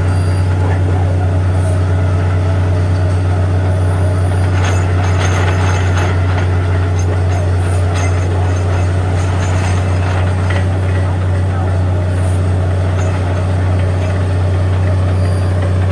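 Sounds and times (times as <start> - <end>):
drilling rig engine drone: 0.0 - 15.9
faint rattles: 4.4 - 15.9.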